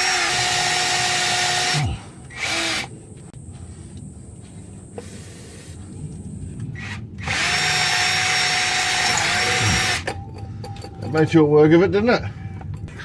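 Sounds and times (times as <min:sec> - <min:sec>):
drill whining into steel: 0:00.0 - 0:02.9, 0:06.8 - 0:10.2.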